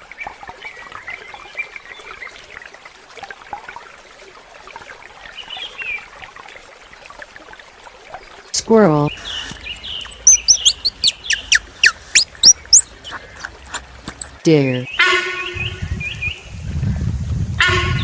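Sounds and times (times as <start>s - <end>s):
water trickling: 0.0s - 14.6s
faint short chirps: 9.5s - 14.3s.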